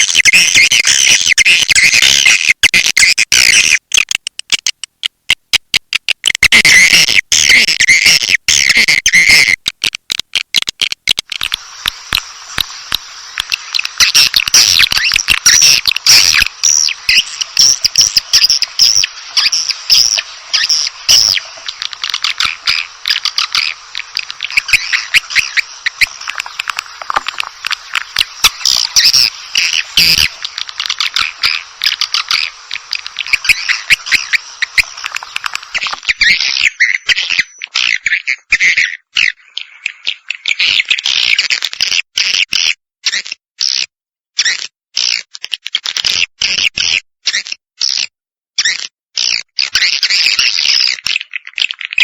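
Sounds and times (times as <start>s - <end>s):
swiftlet chirps and twitters: 13.6s - 41.4s.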